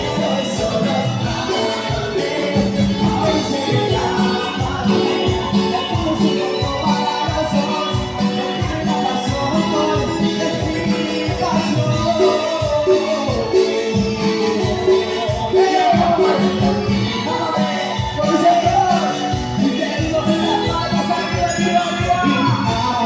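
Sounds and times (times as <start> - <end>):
hand percussion: 0.0 - 23.0
latin dance band over pa: 0.0 - 23.0
melodic lead line: 0.0 - 23.0.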